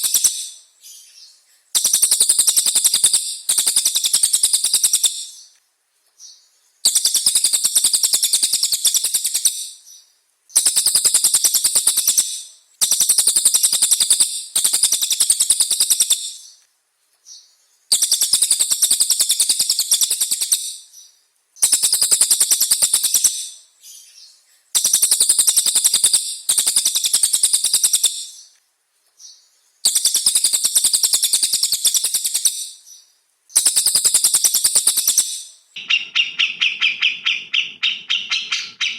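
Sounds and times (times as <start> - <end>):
songbird trilling: 29.2 - 38.9.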